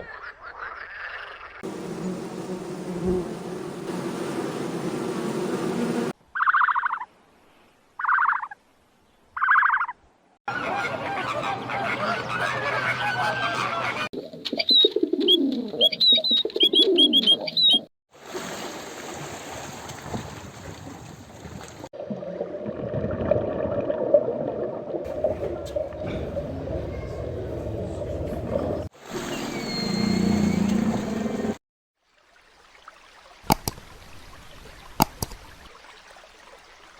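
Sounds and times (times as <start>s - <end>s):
birds calling: 0.0s - 6.9s, 10.5s - 17.8s, 25.1s - 31.6s.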